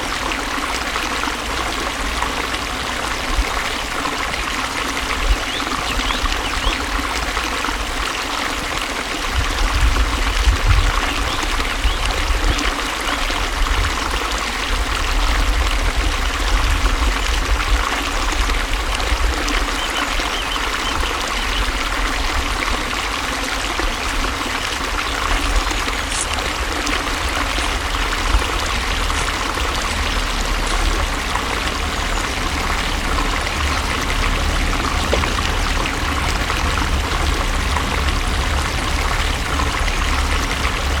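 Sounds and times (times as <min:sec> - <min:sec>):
water rushing: 0:00.0 - 0:41.0
deep low rumble: 0:25.2 - 0:41.0.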